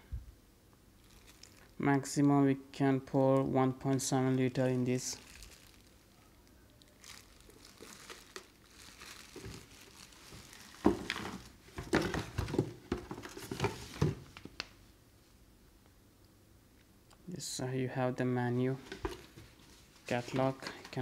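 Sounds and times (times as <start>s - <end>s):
packaging crinkling and rustling: 1.0s - 1.8s, 3.9s - 6.0s, 6.8s - 14.7s, 18.8s - 21.0s.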